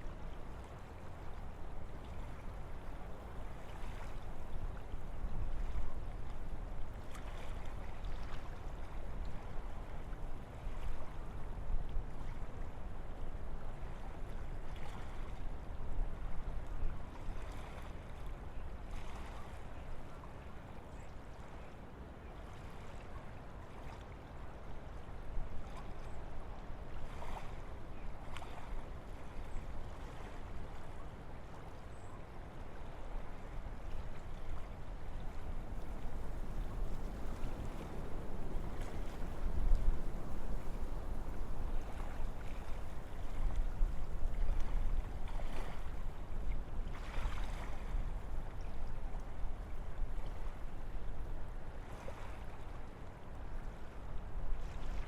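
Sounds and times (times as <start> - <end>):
wind blowing through trees: 34.7 - 46.6.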